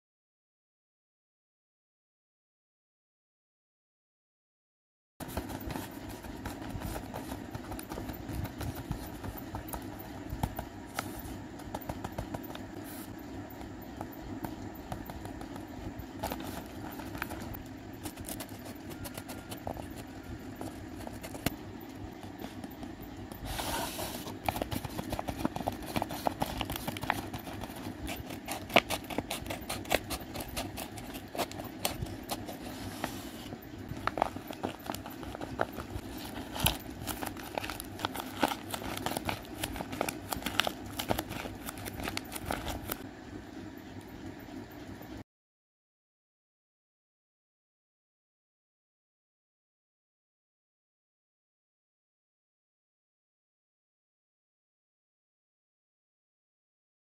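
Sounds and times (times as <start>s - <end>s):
paper crinkling: 5.2s - 13.1s, 14.9s - 21.6s, 22.2s - 43.0s
low hum: 5.2s - 45.2s.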